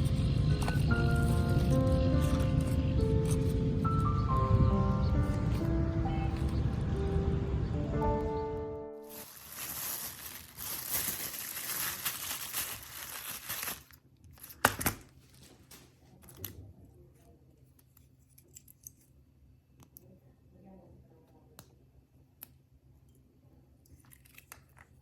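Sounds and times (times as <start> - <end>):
background music: 0.0 - 9.5
thin material tearing: 9.1 - 14.9.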